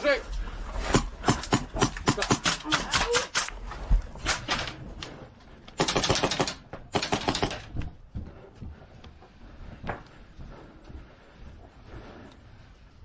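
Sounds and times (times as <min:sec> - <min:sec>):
airsoft gun rapid shots: 0:00.9 - 0:03.5, 0:05.8 - 0:07.7.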